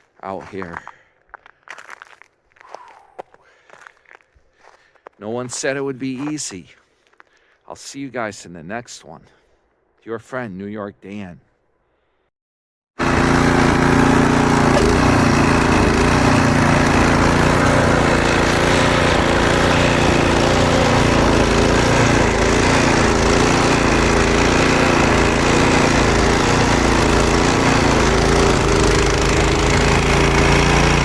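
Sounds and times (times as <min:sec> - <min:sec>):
snowblower engine running: 0:13.0 - 0:31.0.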